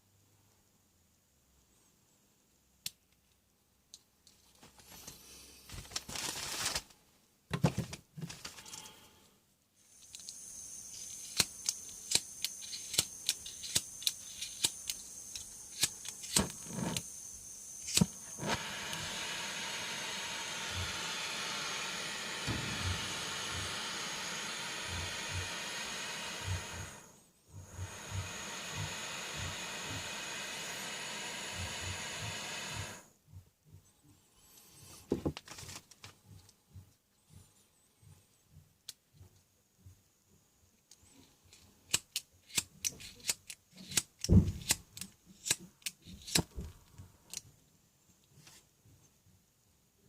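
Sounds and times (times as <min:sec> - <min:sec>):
gas hissing: 0:09.9 - 0:33.1
sharp igniter clicks: 0:10.0 - 0:27.1.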